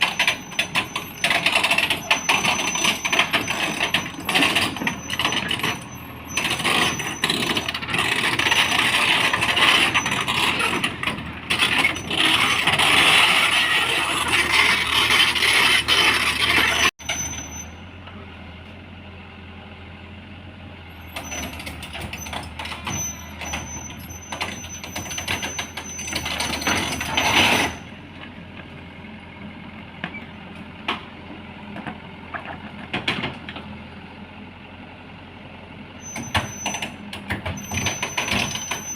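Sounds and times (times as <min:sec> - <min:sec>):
metal clanks: 0:00.0 - 0:13.3
heavy machinery running: 0:00.0 - 0:18.6, 0:20.8 - 0:28.4, 0:36.0 - 0:38.9.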